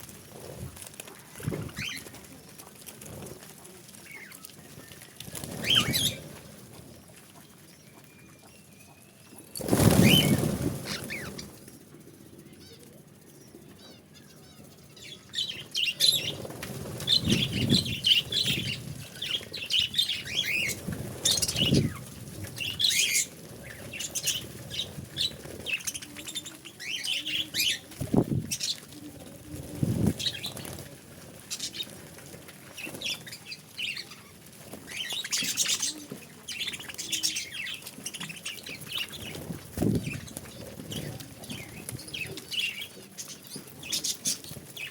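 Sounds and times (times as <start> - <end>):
budgerigars chirping and chattering: 5.5 - 6.3, 17.0 - 22.0.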